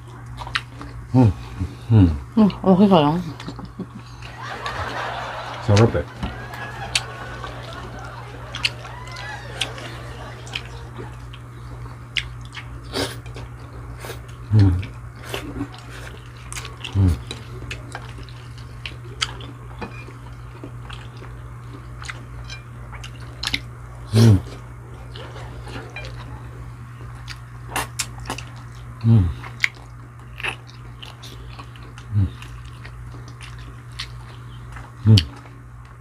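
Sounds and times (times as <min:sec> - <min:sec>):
steady low hum: 0:00.0 - 0:36.0
mouth chewing smacks and clicks: 0:10.5 - 0:13.6, 0:22.9 - 0:23.7, 0:27.2 - 0:35.5.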